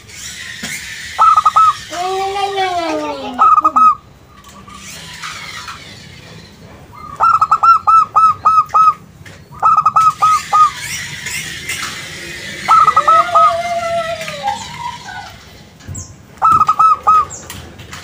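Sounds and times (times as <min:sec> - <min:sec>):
dove cooing: 0:01.2 - 0:01.8, 0:02.9 - 0:04.0, 0:07.0 - 0:09.0, 0:12.3 - 0:15.4, 0:16.4 - 0:17.4.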